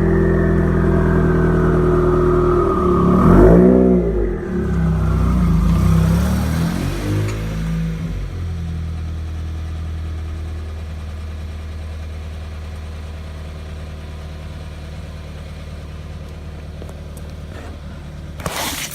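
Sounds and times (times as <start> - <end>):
loud car engine idling: 8.0 - 18.4.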